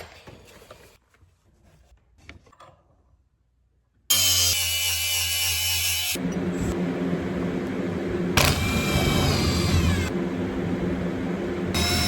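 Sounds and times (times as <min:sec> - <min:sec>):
power tool running: 0:04.1 - 0:12.0.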